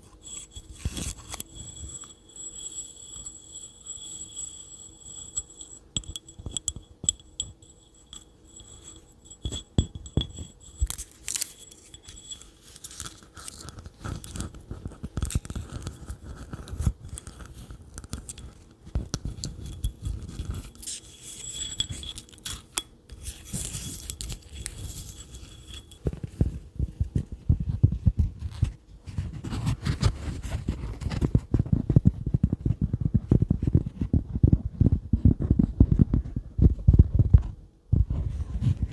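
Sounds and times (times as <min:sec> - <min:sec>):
fingertips tapping and scratching: 0:00.0 - 0:28.7.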